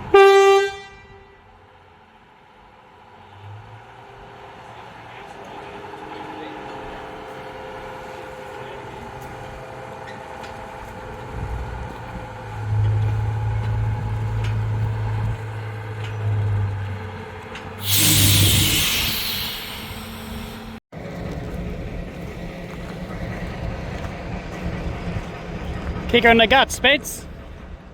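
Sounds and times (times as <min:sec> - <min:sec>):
locomotive engine drone: 0:00.0 - 0:27.9
compressed air hiss: 0:17.8 - 0:20.8.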